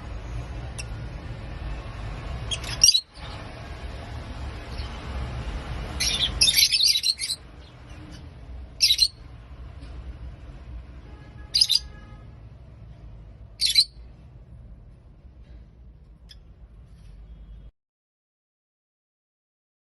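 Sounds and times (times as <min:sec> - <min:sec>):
lovebirds chirping: 0:02.3 - 0:03.6, 0:04.6 - 0:09.4, 0:11.4 - 0:12.2, 0:13.5 - 0:14.2, 0:16.1 - 0:17.7.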